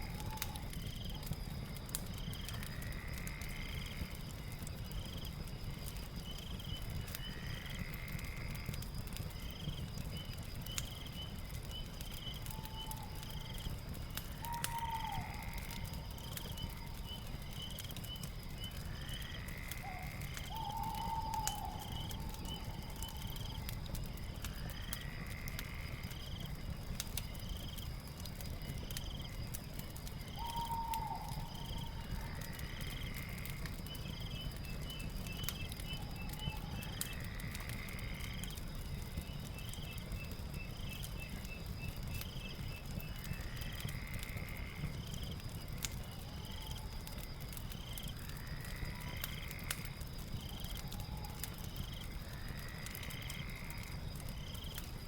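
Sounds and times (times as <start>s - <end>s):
fire crackling: 0.0s - 55.0s
high insect drone: 2.3s - 5.1s, 7.2s - 8.8s, 18.6s - 27.2s, 35.2s - 38.7s, 42.4s - 44.9s.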